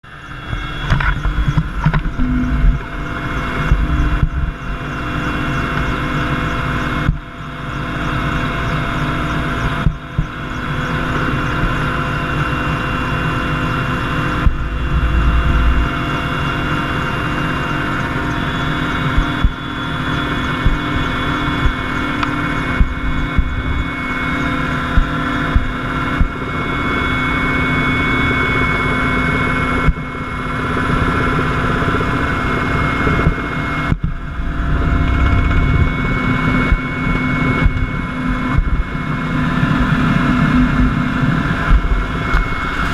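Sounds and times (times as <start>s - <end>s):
engine running loudly: 0.0s - 42.9s
whining tones: 0.1s - 7.2s, 10.0s - 26.9s, 32.8s - 42.9s.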